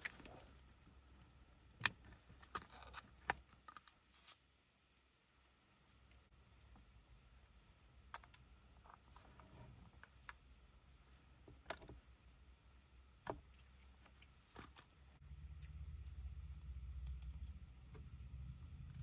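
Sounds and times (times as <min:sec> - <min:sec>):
low hum: 0:15.2 - 0:19.0.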